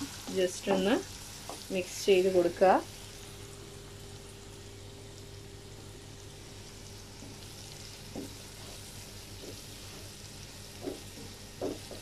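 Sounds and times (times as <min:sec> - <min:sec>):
masala sizzling in a pan: 0:00.0 - 0:12.0
spatula knocking against pan: 0:10.7 - 0:12.0.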